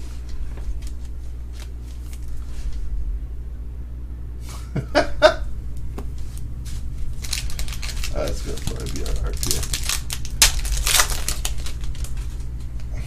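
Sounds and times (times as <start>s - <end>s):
low hum: 0.0s - 13.0s
cards snapping: 7.2s - 12.9s
trading cards ticking and rustling: 7.2s - 12.9s.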